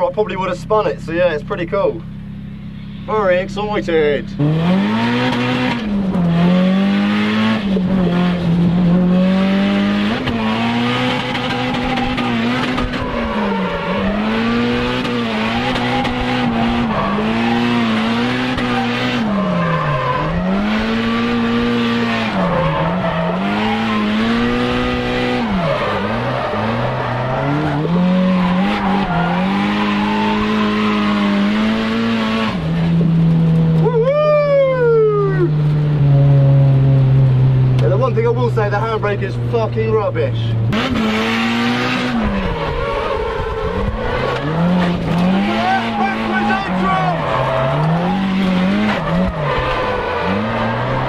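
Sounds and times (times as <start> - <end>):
car engine revving: 0.0 - 51.0
tyres squealing: 42.6 - 51.0.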